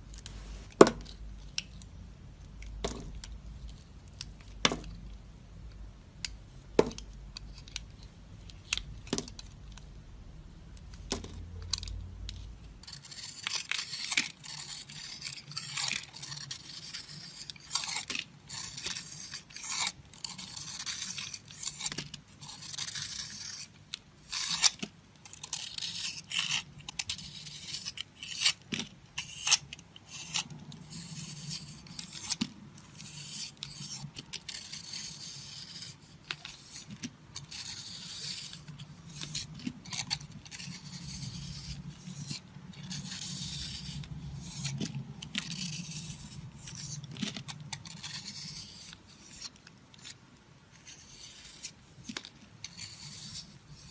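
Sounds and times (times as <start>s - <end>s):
knife scraping dry soap: 11.2s - 53.9s.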